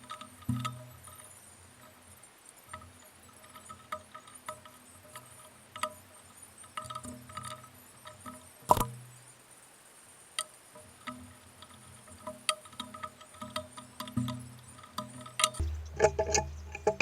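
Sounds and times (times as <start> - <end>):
metal parts clinking and knocking: 12.2 - 17.0
metallic ringing: 15.2 - 17.0.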